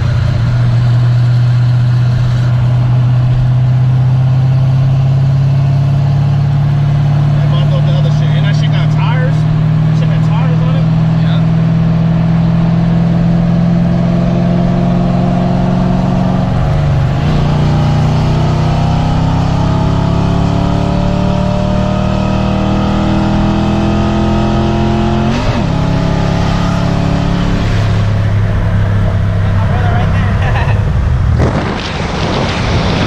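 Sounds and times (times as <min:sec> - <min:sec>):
car engine accelerating: 0:00.0 - 0:33.0.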